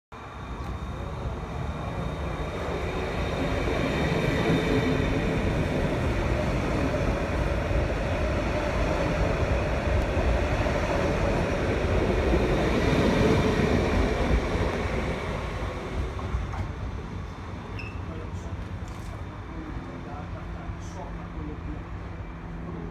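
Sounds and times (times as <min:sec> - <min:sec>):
train wheels rumbling on rails: 0:00.2 - 0:21.0.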